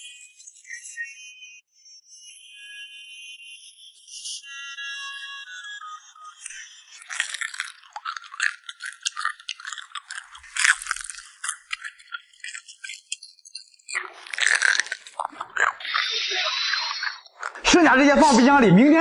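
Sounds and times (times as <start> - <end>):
crunchy food chewing: 6.4 - 17.6.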